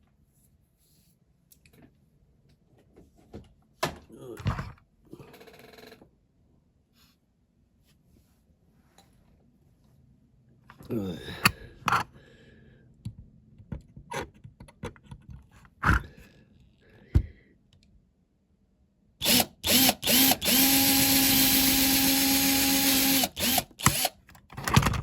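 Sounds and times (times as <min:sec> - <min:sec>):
small electric drill: 0:19.2 - 0:24.2.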